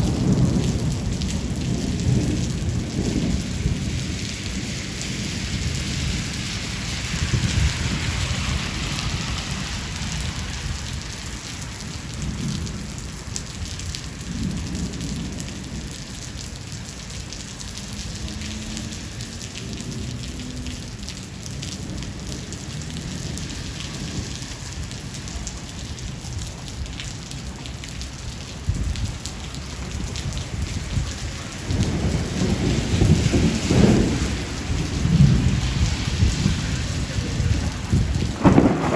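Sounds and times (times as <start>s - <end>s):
rolling thunder: 0.0s - 16.6s, 28.4s - 38.9s
heavy rain falling: 0.0s - 38.9s.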